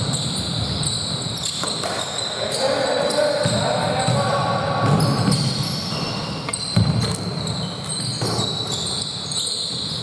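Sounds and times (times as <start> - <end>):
sneakers squeaking on floor: 0.0 - 10.0
basketball bouncing: 6.5 - 8.8.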